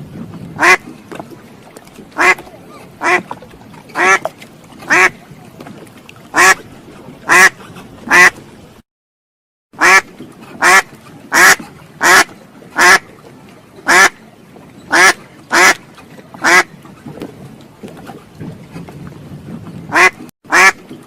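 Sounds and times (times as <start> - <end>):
duck quacking: 2.2 - 2.4, 3.0 - 3.2, 4.0 - 4.3, 4.9 - 5.1, 6.4 - 6.6, 7.3 - 8.3, 9.8 - 10.0, 10.6 - 13.0, 13.9 - 14.1, 14.9 - 15.8, 16.4 - 16.7, 19.9 - 20.8.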